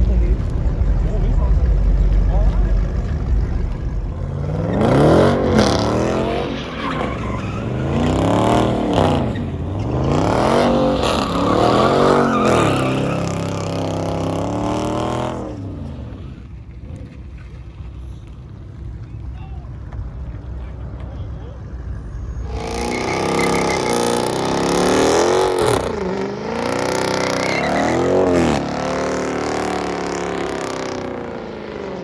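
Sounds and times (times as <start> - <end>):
spinning tyres hissing: 0.0 - 18.9
car engine revving: 0.0 - 32.0.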